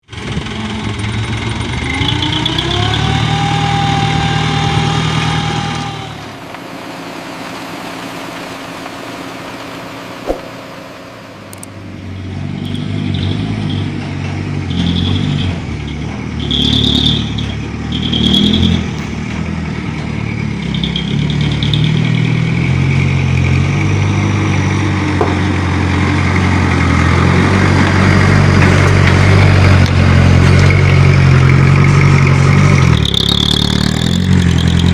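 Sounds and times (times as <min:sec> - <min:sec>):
truck diesel engine revving: 0:00.0 - 0:34.9
short high squeals: 0:12.1 - 0:14.0, 0:14.6 - 0:19.0, 0:20.2 - 0:23.1, 0:31.9 - 0:34.9.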